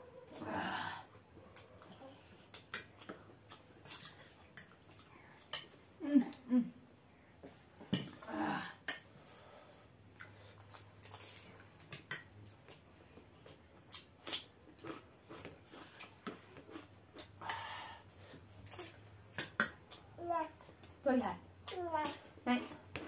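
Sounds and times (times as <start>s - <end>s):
crunchy chewing: 1.4s - 5.8s, 10.1s - 17.6s.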